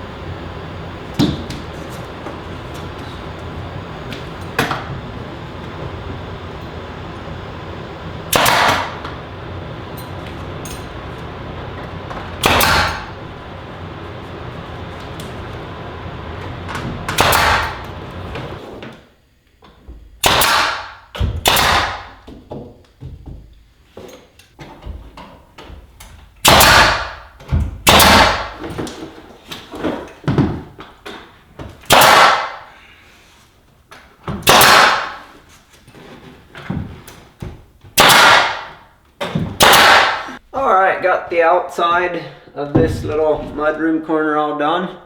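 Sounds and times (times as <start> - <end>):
power tool running: 0.0 - 19.0
nail gun bangs: 8.3 - 9.2, 12.1 - 13.2, 16.6 - 17.9, 20.2 - 22.4, 26.4 - 28.9, 31.8 - 32.7, 34.3 - 35.4, 38.0 - 40.4.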